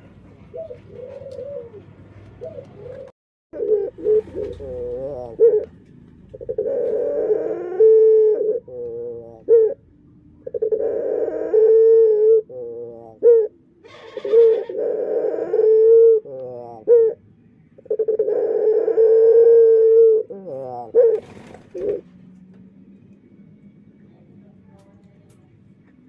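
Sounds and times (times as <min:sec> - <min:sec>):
dove cooing: 0:00.0 - 0:22.2.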